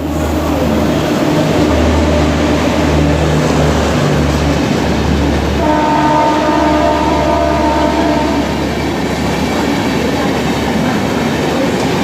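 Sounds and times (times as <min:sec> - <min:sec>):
locomotive horn: 0:00.0 - 0:04.2, 0:05.6 - 0:08.8
train rumbling past: 0:00.0 - 0:12.0.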